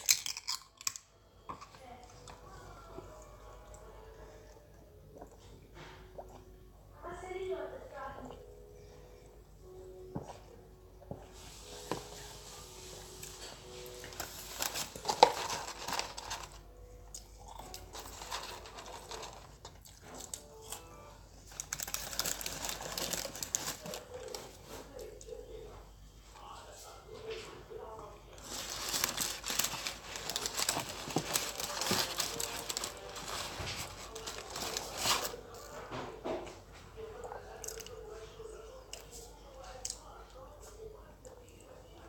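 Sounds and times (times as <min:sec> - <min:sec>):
mouth chewing food: 0:00.0 - 0:06.6, 0:17.0 - 0:18.2
mouth chewing fries: 0:14.0 - 0:24.8.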